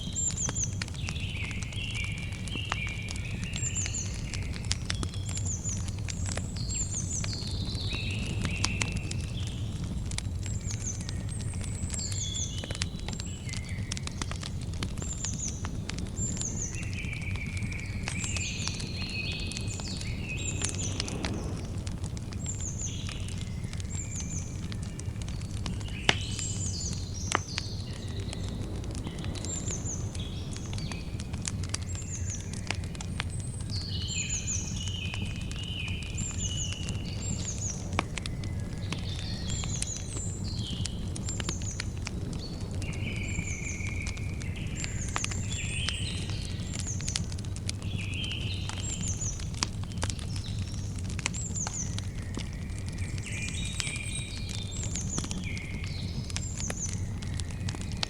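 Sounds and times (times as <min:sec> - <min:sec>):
campfire crackling and popping: 0:00.0 - 0:58.0
low rumble of burning wood: 0:00.0 - 0:58.0
birds chirping: 0:10.5 - 0:47.4.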